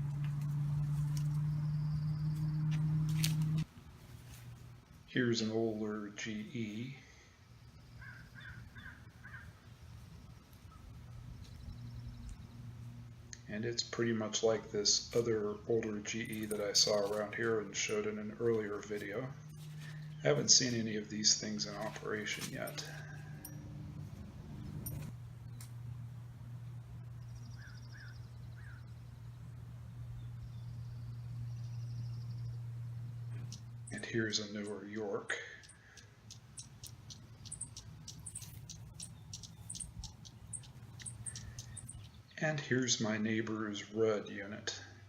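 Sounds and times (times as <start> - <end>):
steady low hum: 0.0 - 45.0
small birds chirping: 0.8 - 3.7, 6.3 - 13.9, 14.9 - 25.8, 26.6 - 43.1
crow cawing: 8.0 - 9.6.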